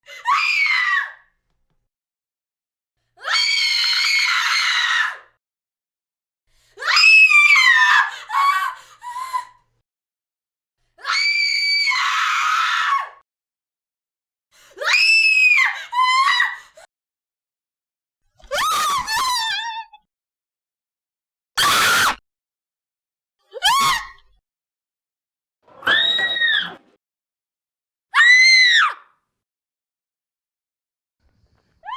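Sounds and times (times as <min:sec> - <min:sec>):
woman screaming in fear: 0:23.6 - 0:24.2.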